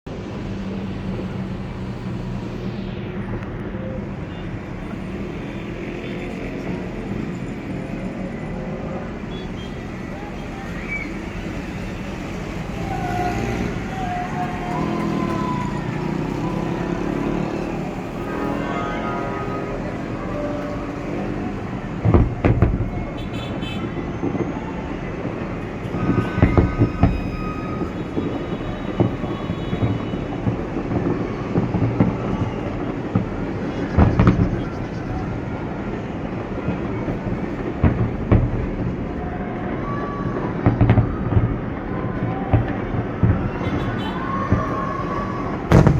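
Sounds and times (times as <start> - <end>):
din of fireworks: 0.1 - 45.9
short whistling tones: 9.3 - 12.0.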